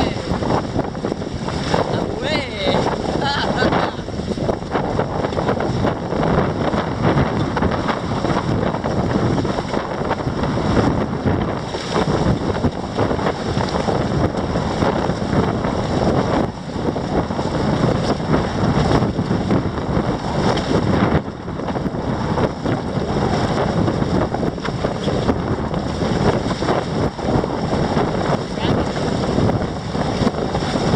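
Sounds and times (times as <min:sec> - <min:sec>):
water splashing along hulls: 0:00.0 - 0:30.9
wind buffeting microphone: 0:00.0 - 0:30.9.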